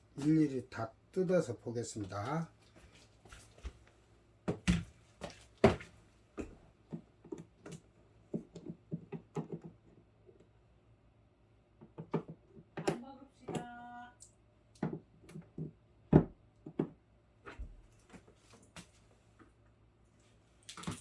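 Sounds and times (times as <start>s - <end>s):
sharp knocks of fridge parts: 4.4s - 5.0s, 5.6s - 7.4s, 14.8s - 17.0s.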